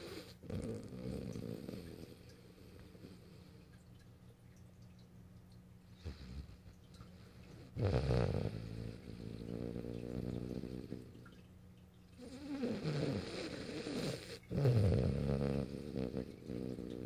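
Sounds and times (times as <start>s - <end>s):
dog snoring: 0.0s - 3.6s, 6.0s - 6.6s, 7.6s - 11.1s, 12.2s - 17.0s.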